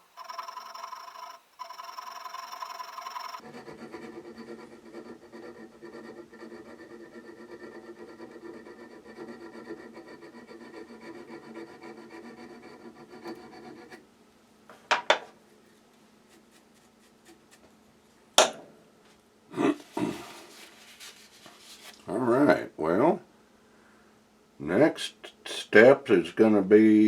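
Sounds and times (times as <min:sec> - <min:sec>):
file rubbing on steel: 0:00.0 - 0:14.0, 0:16.2 - 0:17.7.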